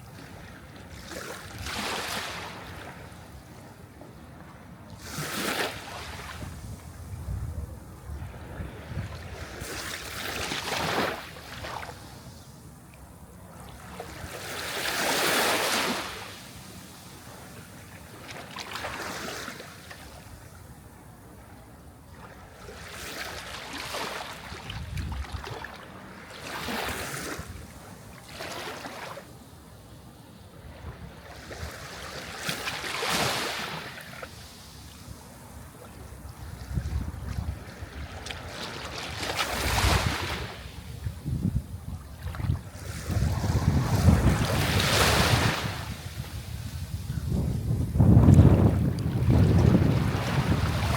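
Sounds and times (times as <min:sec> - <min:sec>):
sea waves breaking: 0:08.4 - 0:12.2, 0:13.8 - 0:17.4, 0:31.3 - 0:34.8, 0:35.4 - 0:40.9, 0:42.2 - 0:50.9.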